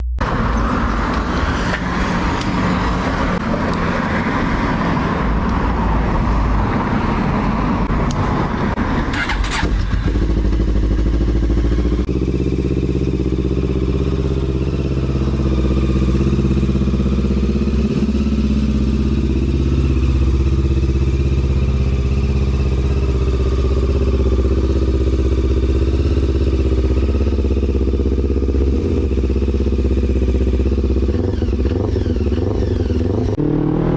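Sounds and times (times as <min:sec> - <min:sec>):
motorcycle engine idling: 0:09.2 - 0:33.4.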